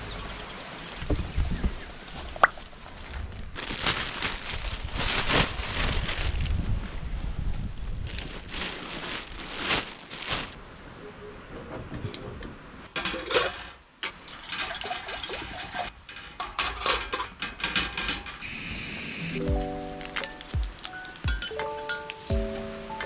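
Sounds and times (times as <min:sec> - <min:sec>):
water pouring and splashing: 0:00.0 - 0:06.0, 0:13.0 - 0:15.9
dishes clinking: 0:21.3 - 0:22.2.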